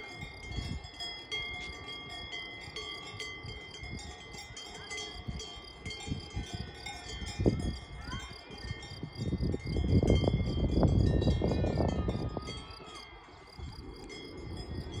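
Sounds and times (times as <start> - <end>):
cowbells clanging: 0.0 - 15.0.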